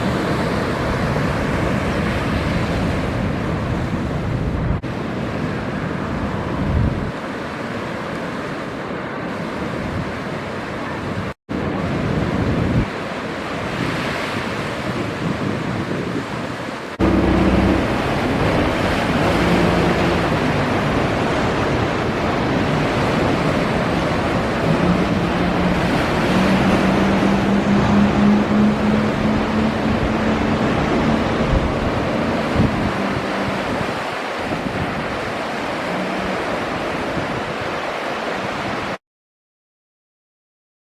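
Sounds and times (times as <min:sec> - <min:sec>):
boat engine hum: 0:00.0 - 0:07.5, 0:16.9 - 0:39.0
wind buffeting microphone: 0:00.0 - 0:07.5, 0:09.3 - 0:39.0
surf breaking: 0:16.9 - 0:39.0.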